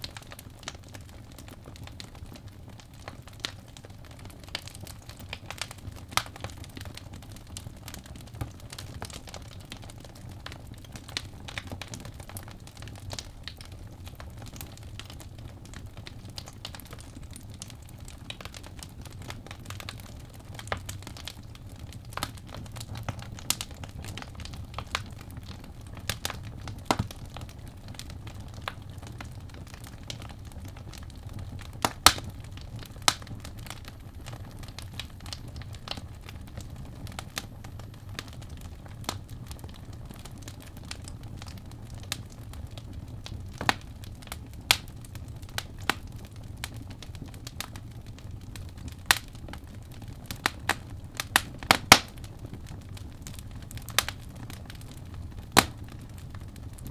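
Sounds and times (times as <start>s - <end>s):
wood fire crackling and popping: 0.0s - 56.9s
low steady rumble: 21.4s - 47.0s.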